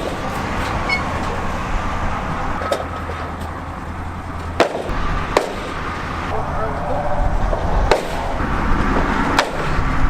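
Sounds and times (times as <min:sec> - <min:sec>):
vehicle engine running: 0:00.0 - 0:10.0
sharp knock: 0:07.9 - 0:08.4.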